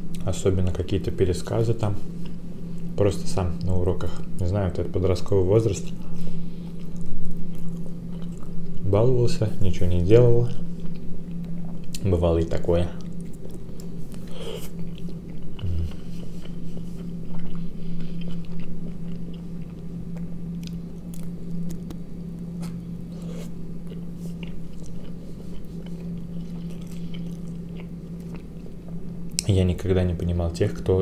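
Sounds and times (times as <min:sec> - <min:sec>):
steady low hum: 0:00.0 - 0:31.0
man chewing food: 0:05.9 - 0:08.8, 0:10.7 - 0:12.0, 0:13.0 - 0:29.5.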